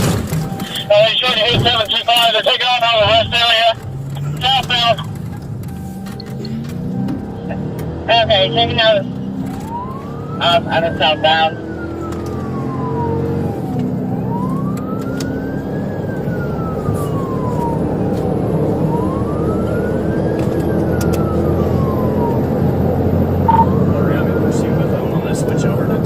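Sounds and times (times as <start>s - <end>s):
engine and road noise: 0.0s - 26.0s
police siren wailing: 0.0s - 26.0s.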